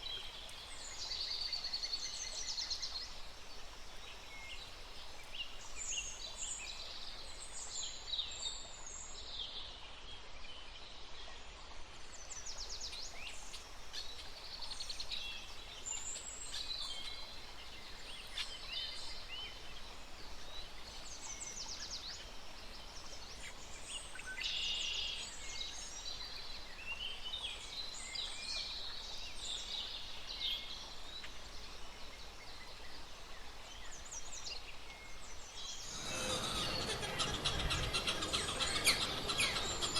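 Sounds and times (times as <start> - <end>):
many birds chirping: 35.6 - 39.9.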